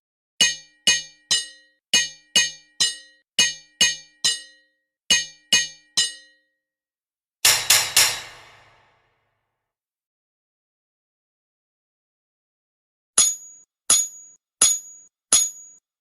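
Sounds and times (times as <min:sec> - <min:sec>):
hammer striking metal on anvil: 0:00.4 - 0:06.4, 0:07.4 - 0:09.1, 0:13.2 - 0:15.8.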